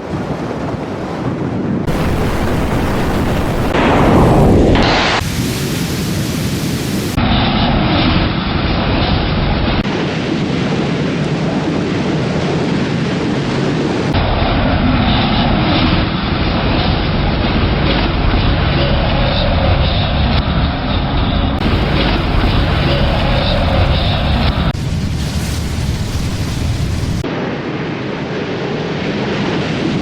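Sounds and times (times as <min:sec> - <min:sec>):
storm wind buffeting microphone: 0:00.0 - 0:30.0
rain: 0:01.8 - 0:07.2, 0:21.6 - 0:28.2.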